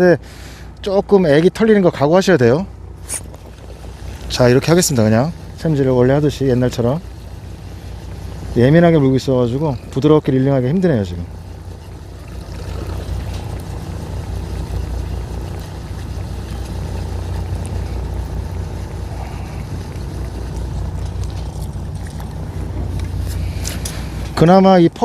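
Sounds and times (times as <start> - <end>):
boat engine humming: 0.0 - 25.0
water noise: 0.0 - 25.0
wind: 0.0 - 25.0.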